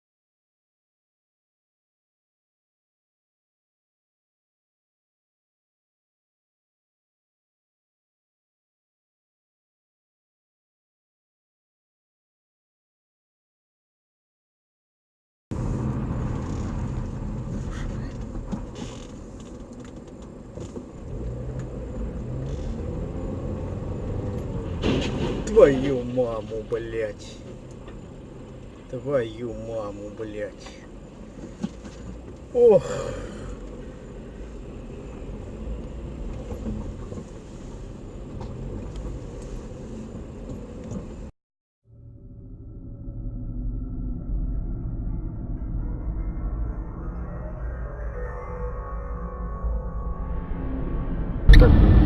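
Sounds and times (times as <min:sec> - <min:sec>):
vehicle engine hum and road noise: 0:15.5 - 0:41.3, 0:50.5 - 0:52.0
low hum with steady tones: 0:49.4 - 0:52.0.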